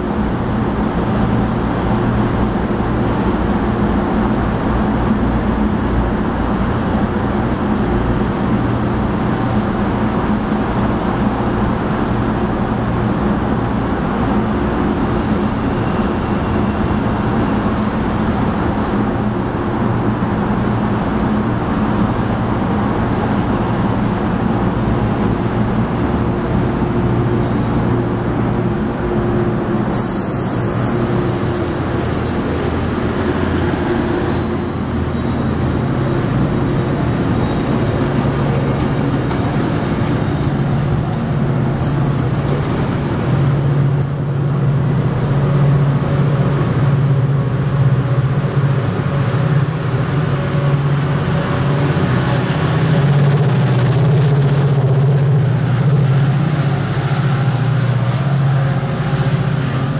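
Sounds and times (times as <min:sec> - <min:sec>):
diesel engine hum: 0:00.0 - 0:59.9
train wheels rumbling on rail: 0:00.0 - 0:59.9
faint wheel squeal: 0:22.3 - 0:27.2, 0:27.8 - 0:33.5, 0:34.2 - 0:44.4, 0:45.2 - 0:45.8.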